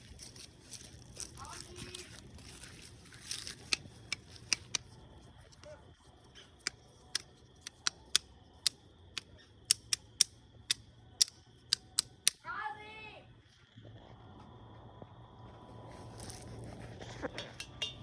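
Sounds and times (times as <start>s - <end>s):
wood fire crackling: 0.0s - 5.1s.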